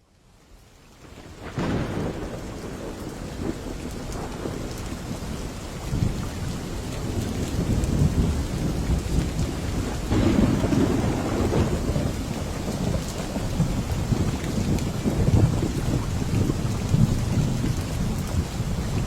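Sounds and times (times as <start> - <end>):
steady rain: 0.0 - 19.0
low rolling thunder: 1.1 - 19.0.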